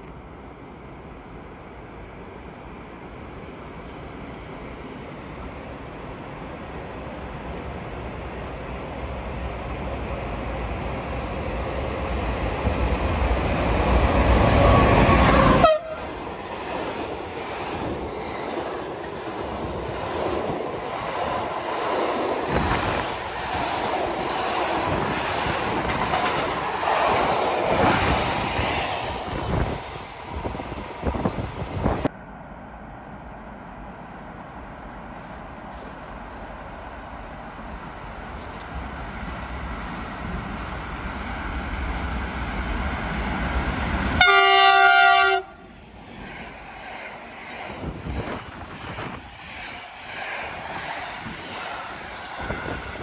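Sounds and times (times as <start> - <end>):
train horn: 14.6 - 16.2, 44.2 - 45.7.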